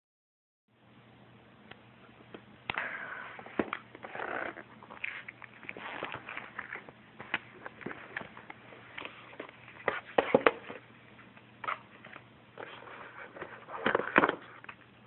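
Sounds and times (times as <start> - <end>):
packaging rustling and crinkling: 4.0 - 10.1.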